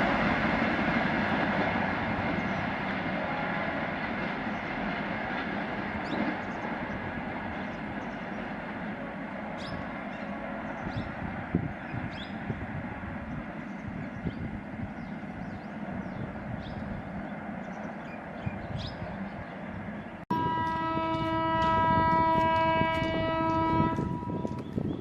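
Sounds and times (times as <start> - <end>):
horn long steady note: 20.3 - 24.6.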